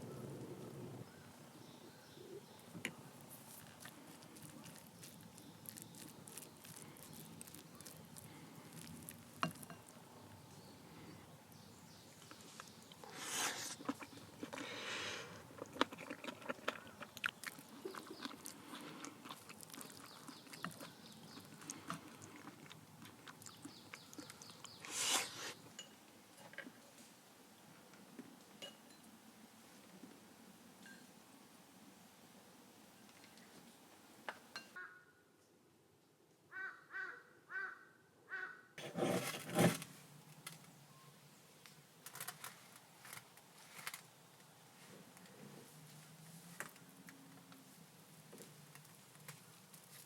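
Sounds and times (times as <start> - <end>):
rustling: 2.8 - 10.0
chewing and crunching food: 3.2 - 10.4, 12.2 - 24.9.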